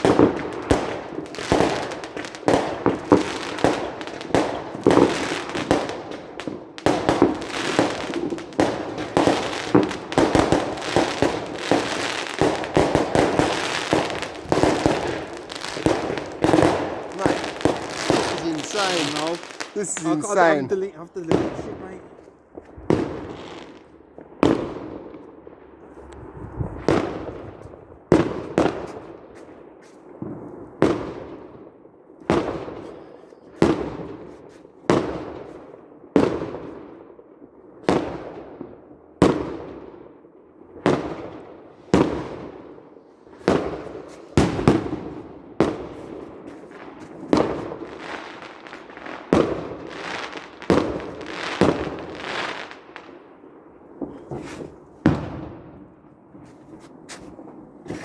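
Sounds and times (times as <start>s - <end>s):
fireworks banging: 0.0s - 25.3s, 26.0s - 29.4s, 43.4s - 58.0s.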